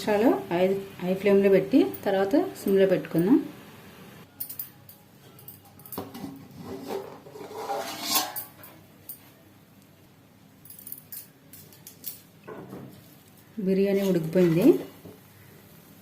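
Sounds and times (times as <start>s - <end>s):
metal cookware scraping: 6.0s - 8.8s, 13.9s - 15.0s.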